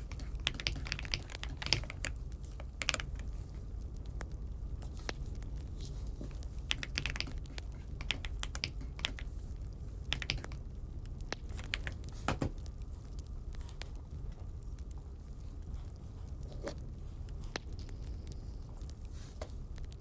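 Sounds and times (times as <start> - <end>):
mechanical keyboard key clicks: 0.0 - 3.3, 6.7 - 9.3, 10.1 - 10.6
low steady hum: 0.0 - 20.0.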